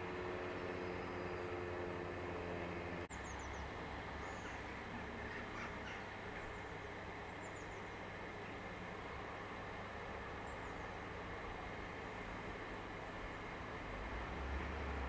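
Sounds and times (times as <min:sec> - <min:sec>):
small birds chirping: 0:00.2 - 0:02.0, 0:03.1 - 0:08.6, 0:10.3 - 0:11.1.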